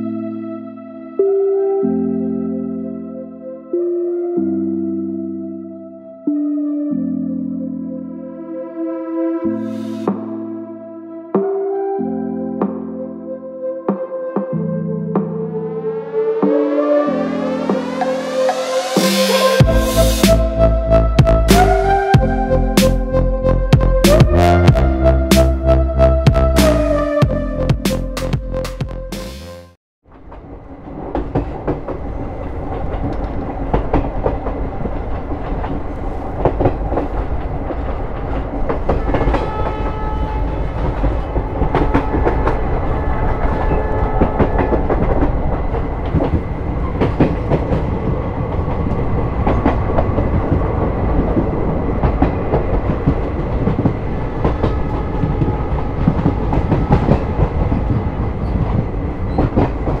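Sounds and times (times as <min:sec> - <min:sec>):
train rumble: 0:17.6 - 0:23.0, 0:30.1 - 1:00.0.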